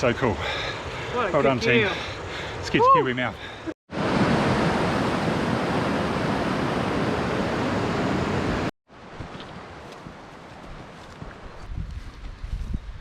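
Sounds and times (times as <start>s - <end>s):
river water rushing: 3.9s - 10.6s.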